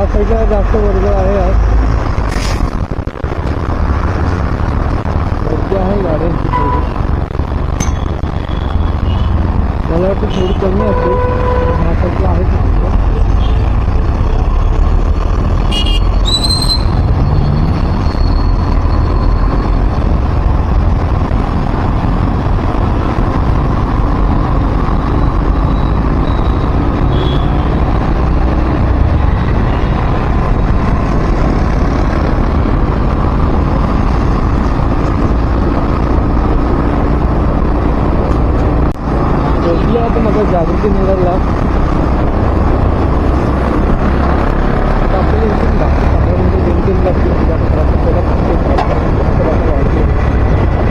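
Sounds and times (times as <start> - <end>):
vehicle road noise rumble: 0.0 - 50.9.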